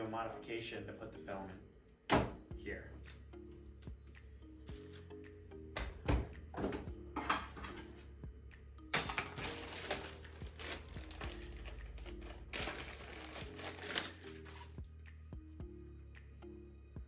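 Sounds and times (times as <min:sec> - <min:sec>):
background music: 0:00.0 - 0:17.0
plastic parts rustling and clattering: 0:08.9 - 0:14.8.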